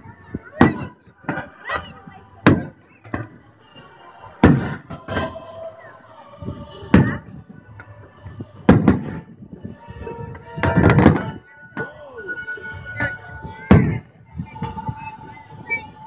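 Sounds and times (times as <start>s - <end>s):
firework shells booming: 4.4s - 5.2s, 8.7s - 9.2s
firework pops: 8.7s - 9.2s.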